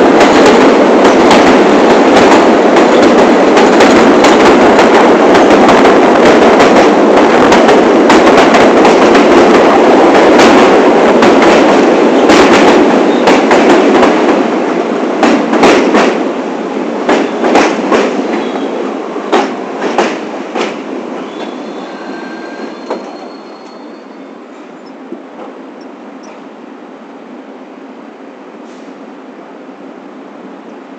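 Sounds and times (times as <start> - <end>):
subway train rumble: 0.0 - 30.9
faint high squeal: 21.2 - 25.0.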